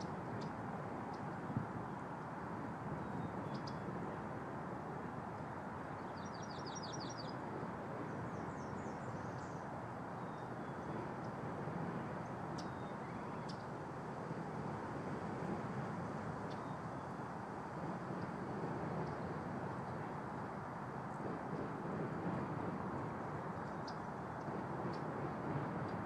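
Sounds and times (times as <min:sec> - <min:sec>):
outdoor background hiss and rumble: 0:00.0 - 0:26.0
bird chirping trill: 0:06.2 - 0:07.3.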